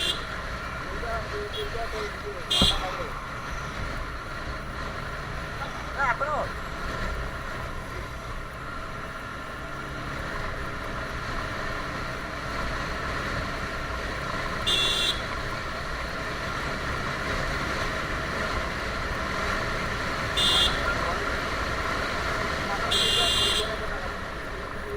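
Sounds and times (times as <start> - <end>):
motorcycle running: 0.0 - 24.9
road and wind noise: 0.0 - 24.9
short high-pitched horn beep: 20.4 - 20.9.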